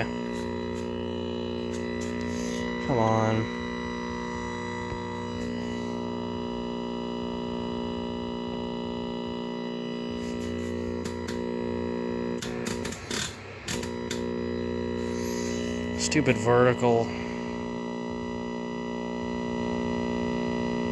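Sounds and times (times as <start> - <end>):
clicks and crackle: 0.0 - 3.4, 10.1 - 15.9
television buzzing hum: 0.0 - 20.9.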